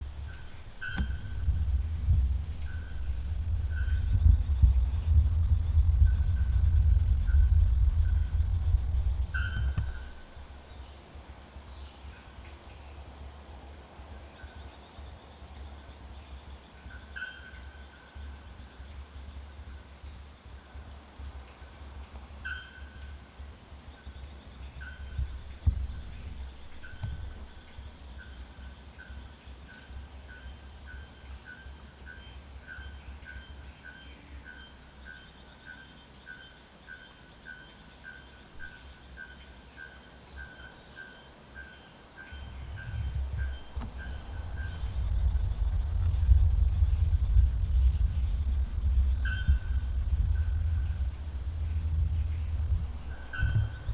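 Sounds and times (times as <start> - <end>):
low rumble: 0.0 - 10.8, 42.4 - 53.9
pulsing insect trill: 0.0 - 20.8, 22.4 - 53.9
soft knock: 0.7 - 3.2, 25.2 - 27.8, 52.7 - 53.9.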